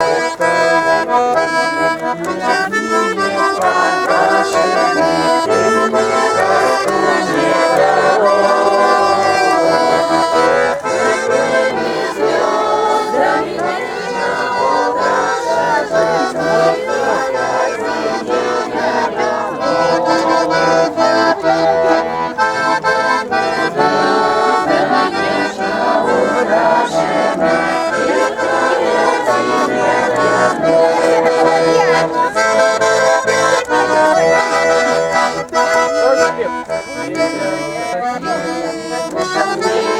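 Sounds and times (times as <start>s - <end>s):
accordion music: 0.0s - 39.9s.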